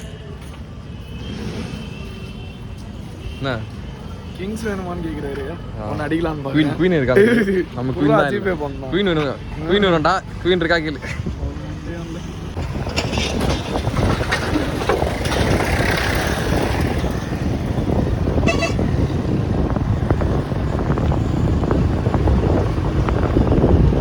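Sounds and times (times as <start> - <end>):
road traffic rumble: 0.0 - 24.0
wind on microphone: 12.5 - 24.0
vehicle horn toot: 18.3 - 19.2.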